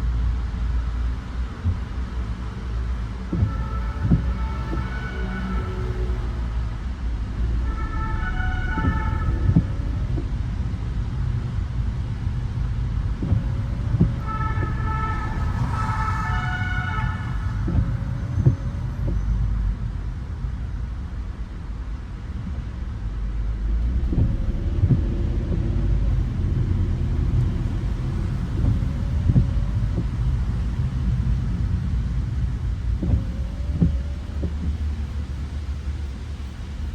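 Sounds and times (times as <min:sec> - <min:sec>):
car driving rumble: 0:00.0 - 0:36.9
two-tone siren: 0:03.2 - 0:10.4, 0:13.2 - 0:19.4.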